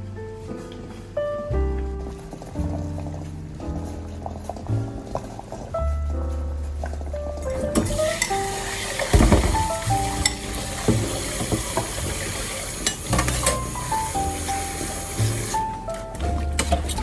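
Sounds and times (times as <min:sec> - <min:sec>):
utensils knocking: 0:07.4 - 0:14.1
food sizzling in a pan: 0:07.8 - 0:15.8.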